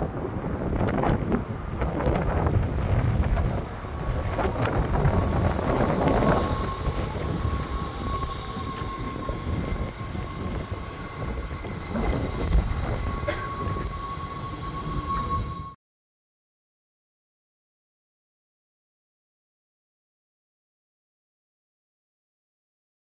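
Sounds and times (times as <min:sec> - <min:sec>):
steady high whine: 0:00.0 - 0:15.8
train wheels rumbling on rails: 0:00.0 - 0:15.8.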